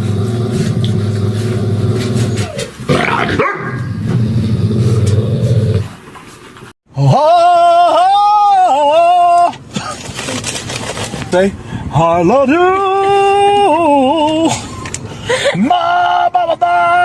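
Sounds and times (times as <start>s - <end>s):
dog growling low: 0.0s - 6.0s.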